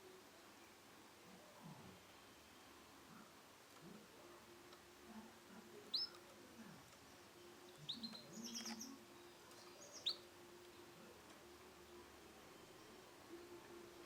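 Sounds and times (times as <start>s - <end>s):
canary chirping: 5.9s - 6.3s, 6.9s - 10.9s.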